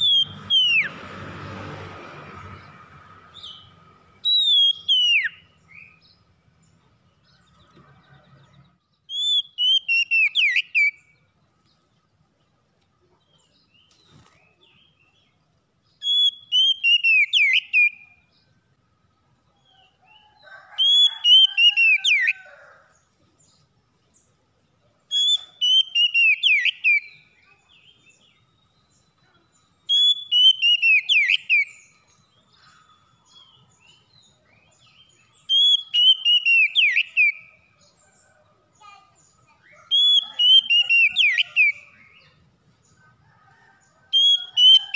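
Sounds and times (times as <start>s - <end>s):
bird singing whistled phrases: 0.0s - 0.9s, 4.2s - 6.0s, 9.1s - 11.1s, 16.0s - 18.2s, 25.1s - 29.1s, 29.8s - 32.0s, 35.0s - 37.6s, 39.7s - 42.3s, 44.2s - 44.9s.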